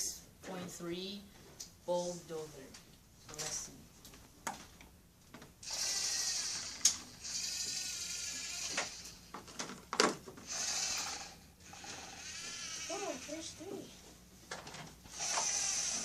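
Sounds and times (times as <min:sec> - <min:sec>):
toy electric motors whirring: 0:05.6 - 0:09.7, 0:10.4 - 0:13.9, 0:15.1 - 0:16.0.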